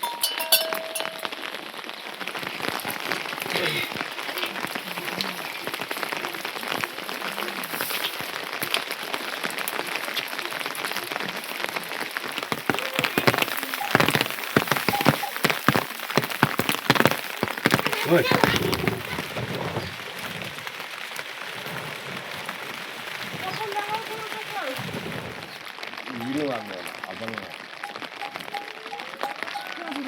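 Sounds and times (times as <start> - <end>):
ringing clink: 0.0 - 1.3
rain on hard surface: 0.0 - 30.0.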